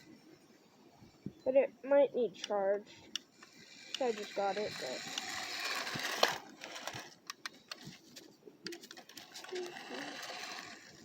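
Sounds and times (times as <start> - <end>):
scattered clicks: 2.4 - 8.0
toy car motor whirring: 2.8 - 8.0, 8.7 - 11.0.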